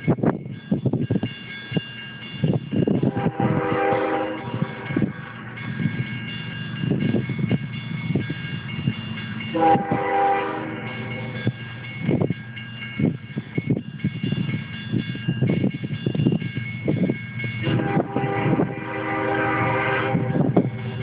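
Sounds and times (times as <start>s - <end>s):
freight train rumbling: 0.0s - 21.0s
train cars clanking: 0.0s - 21.0s
locomotive horn blast: 3.0s - 5.1s, 9.5s - 11.3s, 17.6s - 21.0s.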